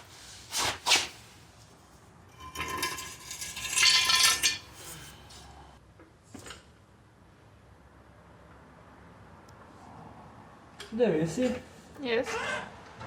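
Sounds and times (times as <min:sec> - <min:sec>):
metal tools clinking and clattering: 0:02.3 - 0:05.1.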